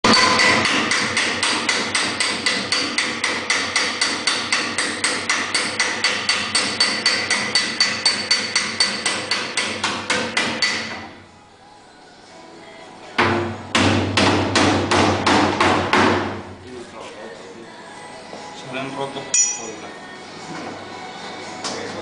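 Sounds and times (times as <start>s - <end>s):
hammer striking metal: 0.0s - 11.0s, 19.4s - 19.8s.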